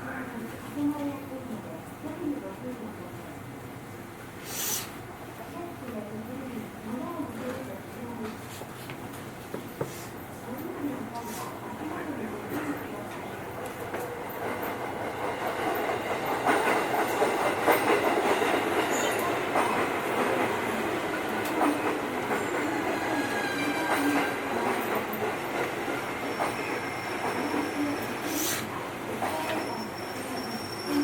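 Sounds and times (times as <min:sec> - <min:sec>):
train wheels clattering on track: 0:12.5 - 0:29.8
faint wheel squeal: 0:29.4 - 0:31.0.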